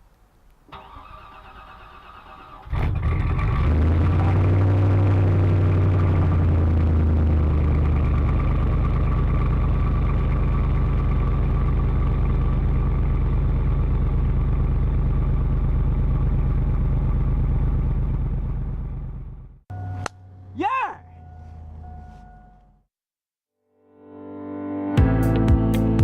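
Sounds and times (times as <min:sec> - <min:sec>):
pickup truck engine idling: 0:05.7 - 0:19.4.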